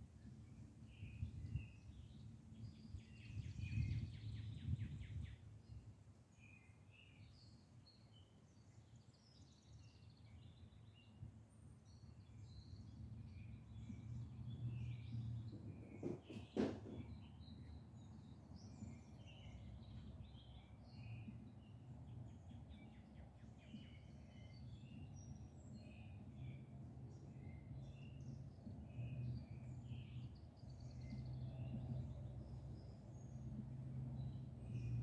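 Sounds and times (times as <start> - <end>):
songbirds chirping: 0.0 - 35.0
short knocks: 15.5 - 17.2.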